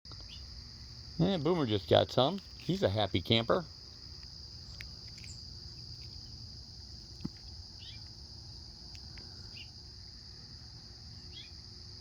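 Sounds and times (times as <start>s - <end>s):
insect chorus: 0.1s - 12.0s
faint bird chirps: 7.7s - 8.1s, 9.1s - 9.8s, 11.2s - 11.6s.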